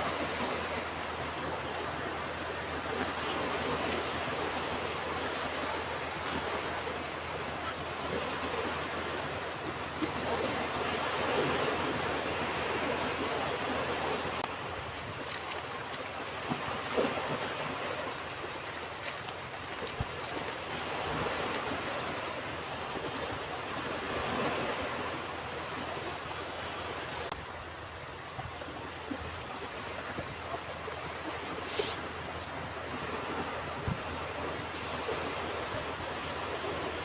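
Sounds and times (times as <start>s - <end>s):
ocean waves breaking on beach: 0.0s - 18.6s, 28.6s - 37.0s.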